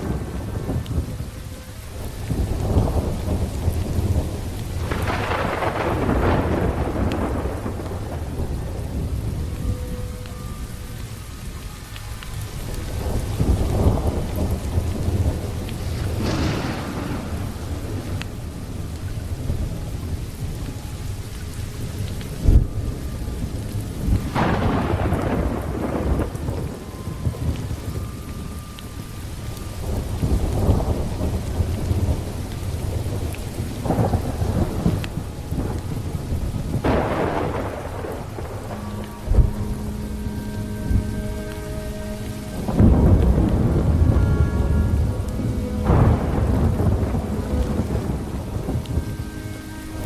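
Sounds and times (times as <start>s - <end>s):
low rolling thunder: 0.0s - 50.0s
steady rain: 0.0s - 50.0s.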